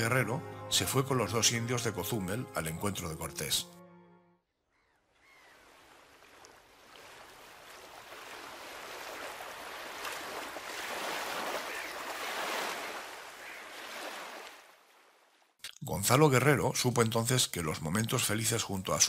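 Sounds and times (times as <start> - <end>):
ocean surf washing onto beach: 5.8 - 14.7.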